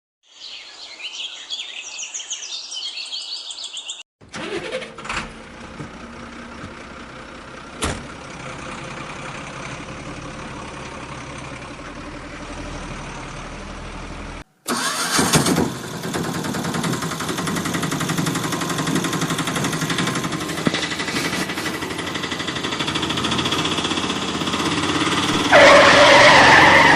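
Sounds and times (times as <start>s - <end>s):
birds chirping: 0.2s - 4.0s
engine with rapid rattle: 4.2s - 26.9s
vehicle engine running: 4.3s - 26.9s.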